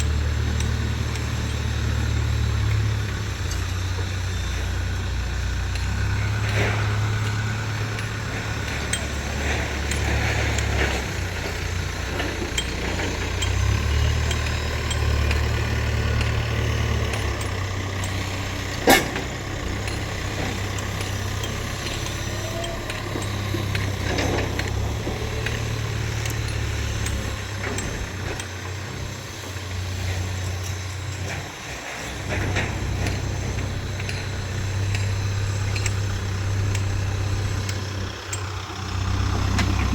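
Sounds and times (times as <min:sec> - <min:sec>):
heavy diesel engine running: 0:00.0 - 0:39.9
sharp metallic clank: 0:17.2 - 0:24.8.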